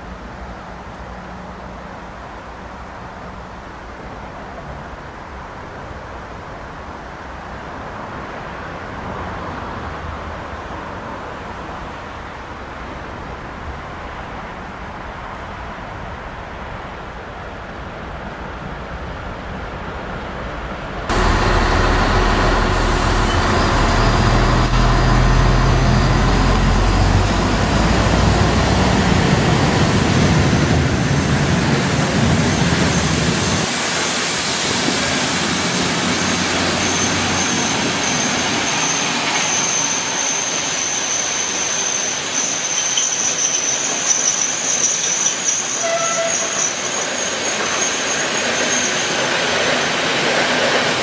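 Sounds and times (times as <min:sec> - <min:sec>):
train rolling rumble: 0:00.0 - 0:51.0
high wheel squeal: 0:21.1 - 0:28.0, 0:34.3 - 0:50.2.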